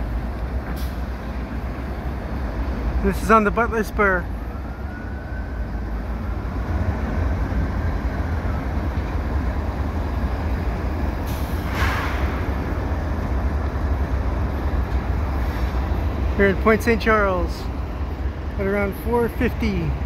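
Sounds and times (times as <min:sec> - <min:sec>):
freight train rumbling: 0:00.0 - 0:20.0
brief hiss: 0:11.2 - 0:12.5.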